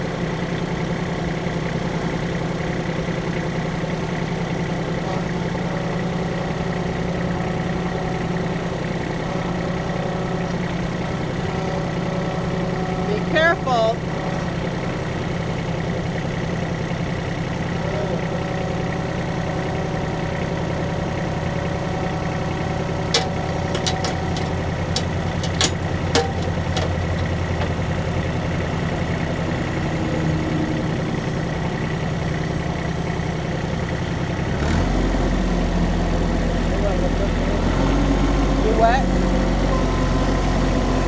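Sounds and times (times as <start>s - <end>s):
vehicle engine idling: 0.0s - 41.0s
sharp clicks or knocks: 23.1s - 27.9s.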